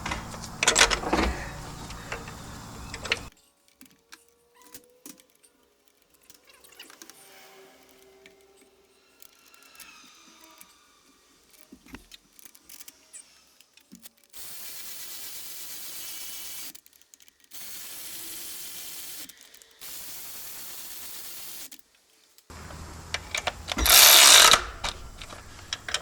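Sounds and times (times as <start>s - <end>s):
hand-held power tool running: 0.0s - 3.3s, 14.4s - 16.7s, 17.5s - 21.7s, 22.5s - 26.0s.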